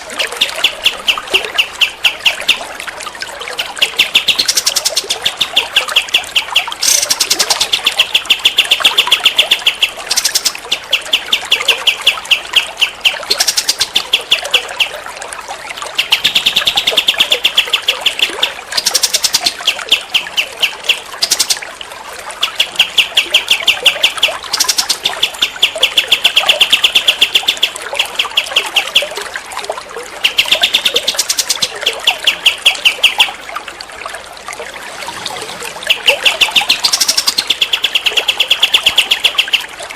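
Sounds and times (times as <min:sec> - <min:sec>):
songbird rattling trills: 0:03.6 - 0:14.9, 0:16.0 - 0:21.6, 0:35.9 - 0:39.6.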